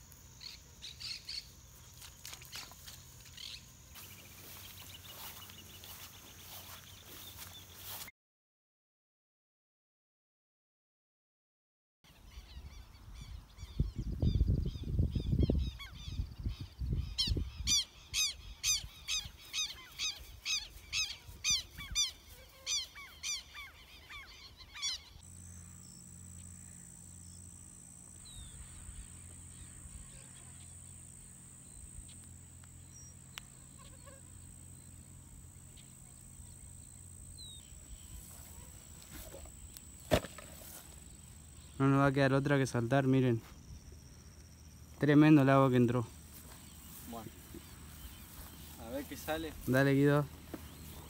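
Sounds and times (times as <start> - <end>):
wind rumble on microphone: 12.6 - 17.8
faint steady hum: 17.8 - 51.0
bird honking calls: 33.6 - 34.6.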